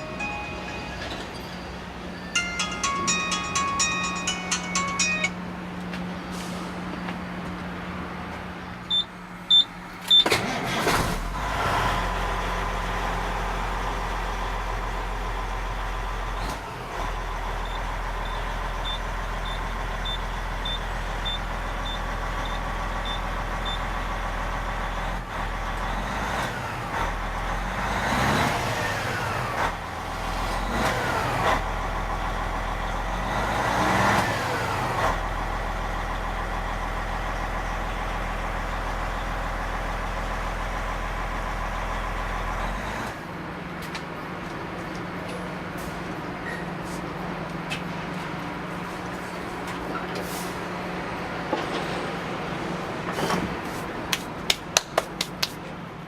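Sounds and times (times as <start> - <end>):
faint warning beeps: 8.9 - 10.3, 17.6 - 23.9
short beeps: 8.9 - 10.3
vehicle engine starting and idling: 8.9 - 43.6
engine revving: 10.3 - 13.8, 25.8 - 31.7, 33.1 - 35.2.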